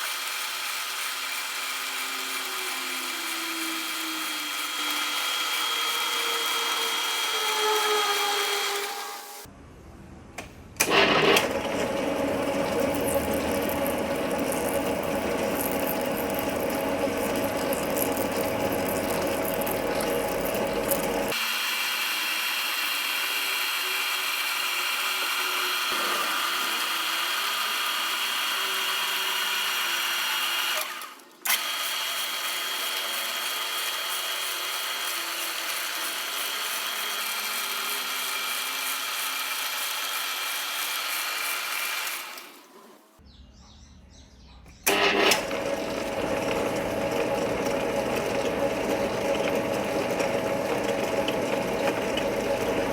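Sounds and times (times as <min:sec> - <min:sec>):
metal lathe whining: 0:00.8 - 0:09.5, 0:10.8 - 0:21.5, 0:44.8 - 0:52.9.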